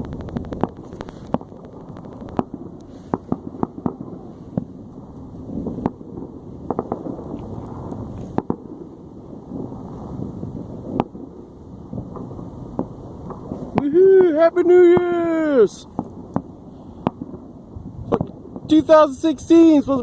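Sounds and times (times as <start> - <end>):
low rumble: 0.0 - 13.8
fireworks popping and banging: 0.0 - 20.0.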